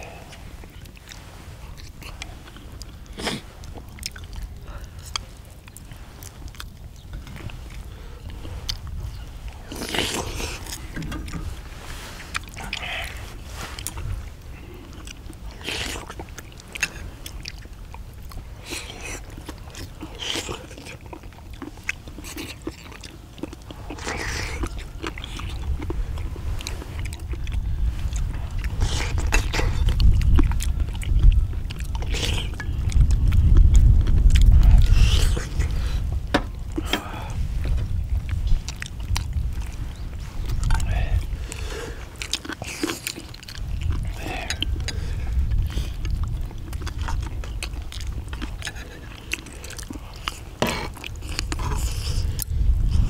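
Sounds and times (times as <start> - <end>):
people chewing: 0.0 - 53.0
mouth and utensil clicks: 40.4 - 52.5.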